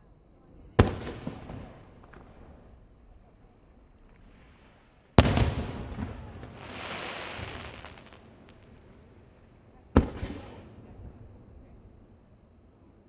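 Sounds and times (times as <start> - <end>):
firework hissing crackle: 3.9 - 9.7
firework shells bursting: 4.0 - 10.2.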